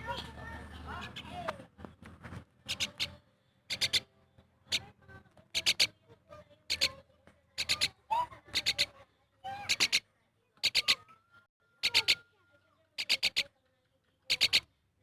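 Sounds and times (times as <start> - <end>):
myna chirping: 2.7 - 4.1, 4.7 - 4.9, 5.5 - 6.0, 6.7 - 7.0, 7.6 - 11.2, 11.8 - 12.3, 12.9 - 13.5, 14.3 - 14.7.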